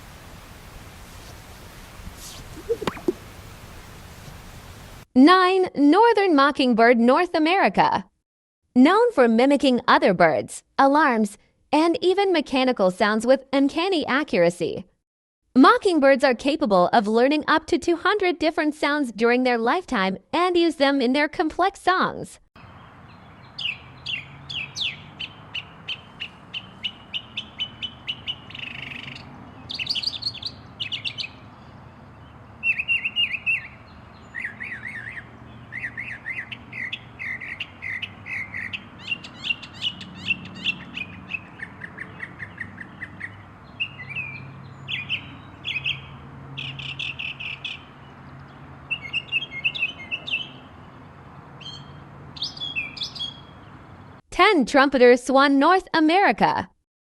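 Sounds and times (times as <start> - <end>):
mockingbird singing: 2.5 - 3.4, 22.6 - 54.2.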